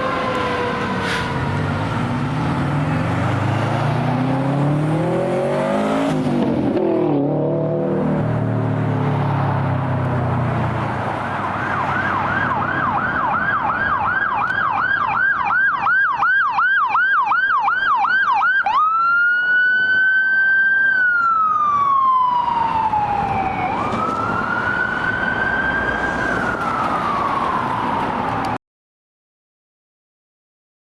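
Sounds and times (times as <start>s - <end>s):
truck engine pulling away: 0.0s - 12.8s
fire engine siren: 0.0s - 28.6s.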